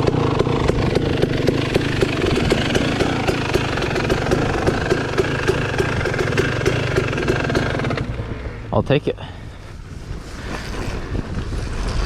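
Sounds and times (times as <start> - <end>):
dirt bike engine idling: 0.0 - 11.4
sharp ticking: 0.9 - 8.1.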